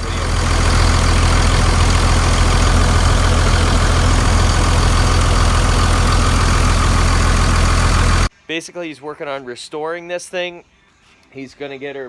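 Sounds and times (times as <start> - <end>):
diesel engine idling: 0.0 - 8.3.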